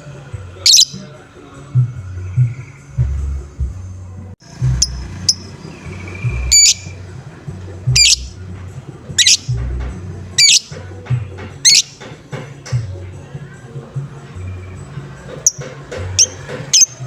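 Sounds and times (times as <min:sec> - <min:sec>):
low rhythmic hum: 0:00.0 - 0:17.0
parrot harsh high-pitched calls: 0:00.7 - 0:01.0, 0:06.5 - 0:06.9, 0:08.0 - 0:08.3, 0:09.2 - 0:09.5, 0:10.4 - 0:10.8, 0:11.6 - 0:12.0, 0:16.2 - 0:17.0
thin whistle: 0:00.7 - 0:01.1, 0:06.1 - 0:07.0, 0:08.0 - 0:08.3, 0:09.2 - 0:09.5, 0:10.4 - 0:10.7.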